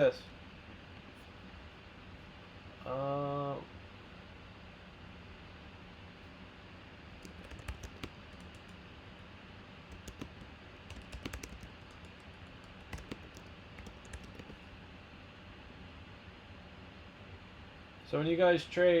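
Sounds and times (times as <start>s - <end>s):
faint low hum: 0.0s - 19.0s
keyboard key clicks: 7.2s - 8.8s, 9.9s - 14.6s.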